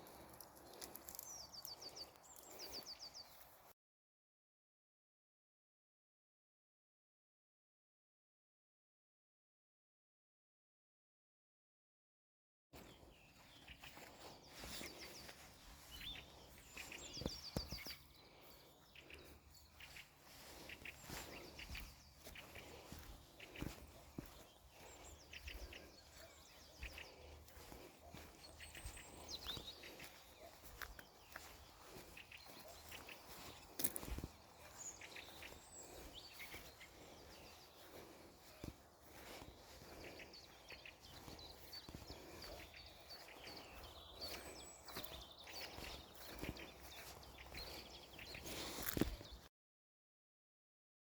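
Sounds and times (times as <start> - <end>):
faint birdsong: 0.0 - 3.7, 12.8 - 49.5
songbirds calling: 0.0 - 3.7, 12.8 - 49.5.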